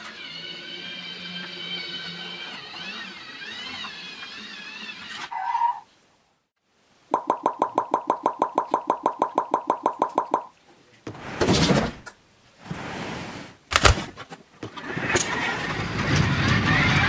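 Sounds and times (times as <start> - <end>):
short electronic beeps: 7.1 - 10.5.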